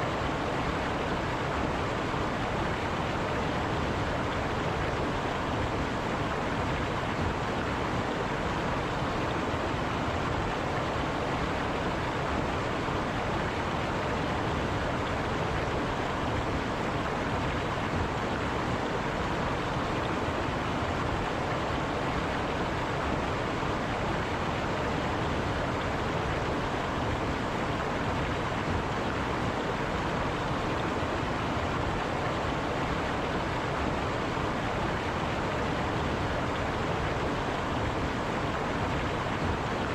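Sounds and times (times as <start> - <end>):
river water over rocks: 0.0 - 39.9.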